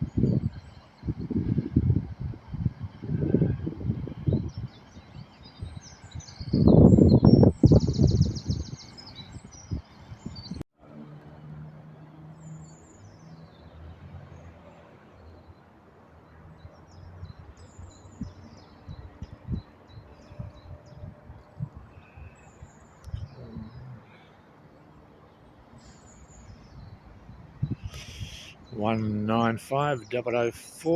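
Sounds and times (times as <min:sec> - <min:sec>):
small birds chirping: 0:04.4 - 0:10.6, 0:16.3 - 0:24.4, 0:25.2 - 0:30.9.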